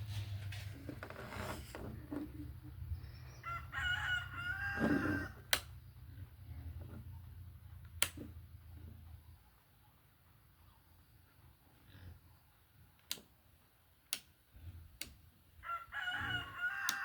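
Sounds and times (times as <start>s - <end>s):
rooster crowing: 3.3s - 5.5s, 15.6s - 17.0s
sharp clicks: 5.4s - 5.8s, 7.8s - 8.3s.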